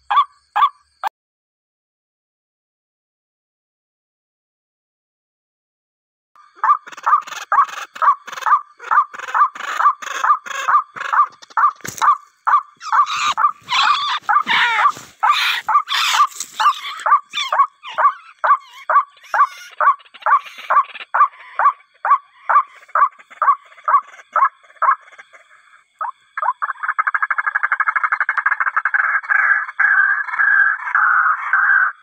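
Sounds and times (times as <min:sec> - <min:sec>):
bird calling loudly: 0:00.0 - 0:00.8, 0:06.4 - 0:32.0
bird rattling chatter: 0:08.8 - 0:18.2.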